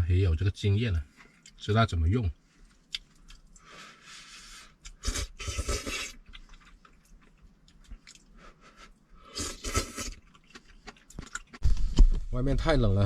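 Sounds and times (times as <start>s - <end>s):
person chewing and crunching food: 2.6s - 3.9s, 4.7s - 12.2s.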